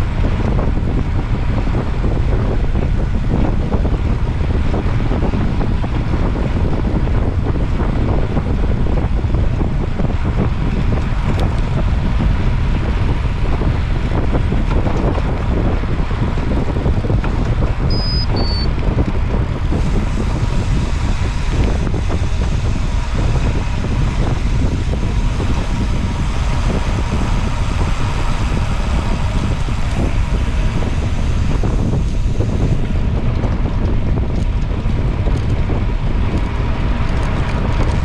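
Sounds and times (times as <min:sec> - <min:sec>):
heavy wind rumble on microphone: 0:00.0 - 0:38.0
short high beeps: 0:17.9 - 0:18.7.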